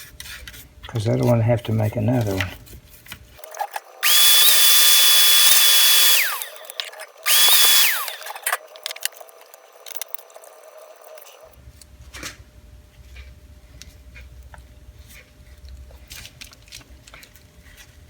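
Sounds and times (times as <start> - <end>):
small vacuum cleaner whining: 4.0 - 9.1.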